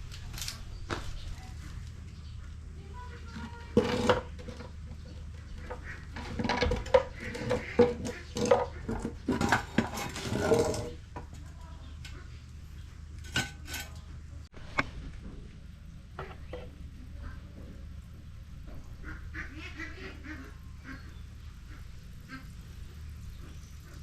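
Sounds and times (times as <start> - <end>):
metal tools clanking: 5.6 - 11.4, 13.2 - 14.1.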